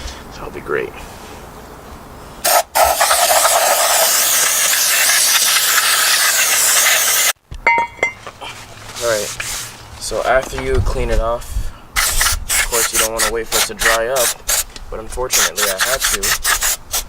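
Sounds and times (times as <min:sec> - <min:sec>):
aerosol spray hissing: 0:02.4 - 0:07.4, 0:12.0 - 0:14.7.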